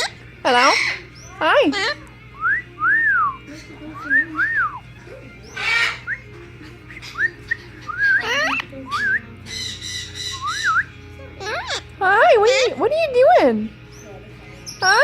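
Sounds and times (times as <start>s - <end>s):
parrot harsh call: 0.0s - 2.0s, 5.5s - 6.1s, 7.0s - 10.8s, 11.4s - 12.8s
parrot rapid chattering: 0.0s - 2.0s, 5.5s - 10.8s, 11.4s - 13.2s
parrot whistled notes: 5.6s - 6.3s, 7.0s - 11.8s.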